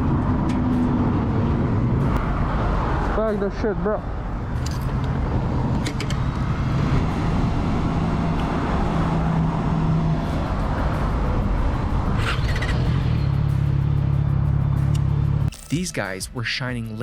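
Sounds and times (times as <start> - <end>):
road traffic and engine hum: 0.0 - 17.0.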